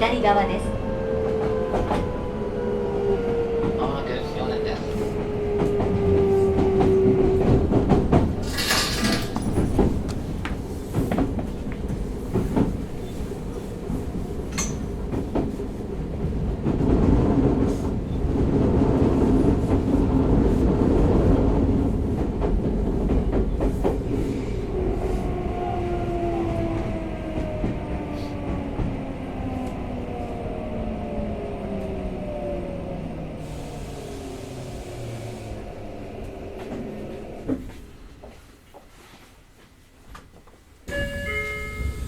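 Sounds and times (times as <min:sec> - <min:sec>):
train wheel rumble: 0:00.0 - 0:42.0
wheels clicking over rail joints: 0:06.8 - 0:12.8.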